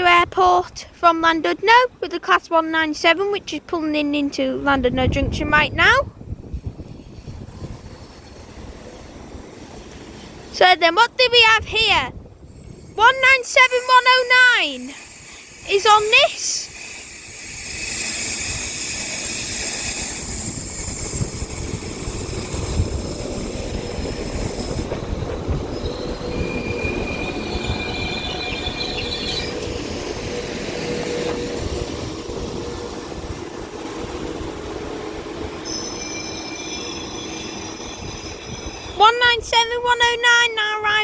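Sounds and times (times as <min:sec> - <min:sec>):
train rumble: 0:04.3 - 0:41.0
wheels and brakes squealing: 0:12.4 - 0:33.1, 0:35.4 - 0:39.0.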